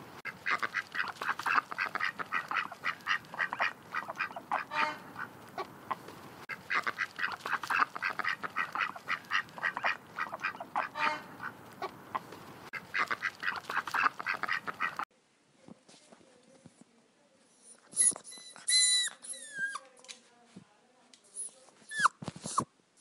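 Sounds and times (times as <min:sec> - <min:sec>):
ducks quacking: 0:00.3 - 0:15.1.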